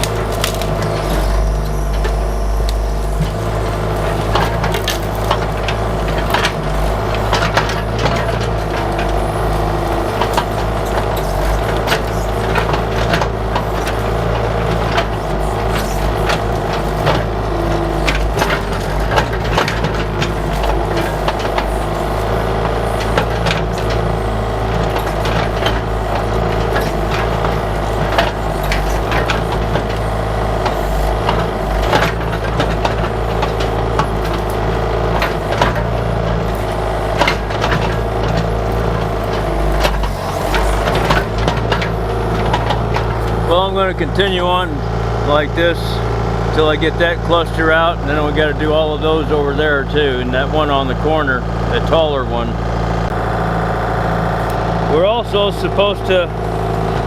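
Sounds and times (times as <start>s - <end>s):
bucket knocking and cracking roots: 0.0s - 1.5s, 4.1s - 44.2s
excavator diesel engine running: 0.0s - 57.0s.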